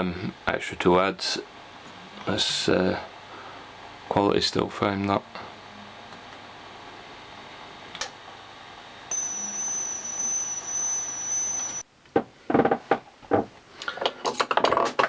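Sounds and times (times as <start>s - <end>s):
high-pitched whine: 4.1s - 11.8s.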